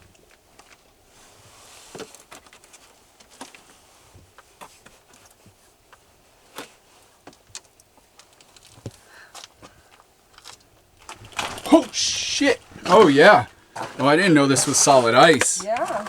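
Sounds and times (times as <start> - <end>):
boots crunching on icy snow: 11.0 - 16.0.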